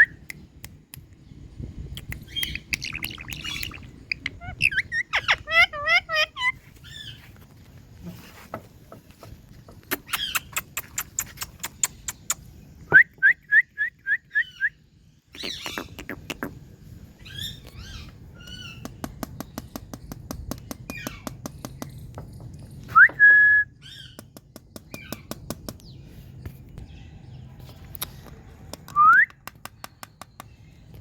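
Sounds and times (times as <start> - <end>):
parakeet chirping: 2.1 - 7.2, 9.8 - 10.7
parakeet harsh calls: 2.4 - 7.2.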